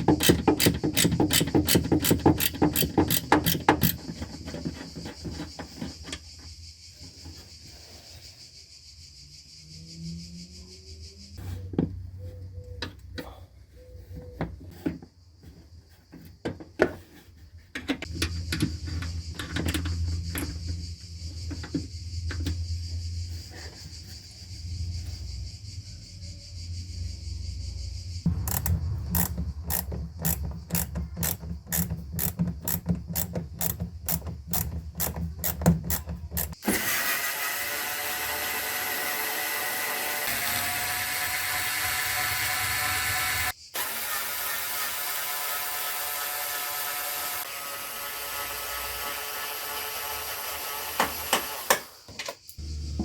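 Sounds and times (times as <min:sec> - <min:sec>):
ratchet wrench clicking: 0:00.0 - 0:04.0, 0:28.3 - 0:36.6.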